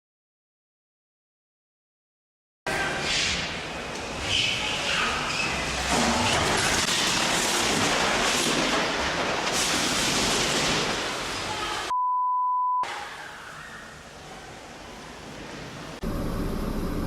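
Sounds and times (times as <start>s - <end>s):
censor beep: 11.9s - 12.9s.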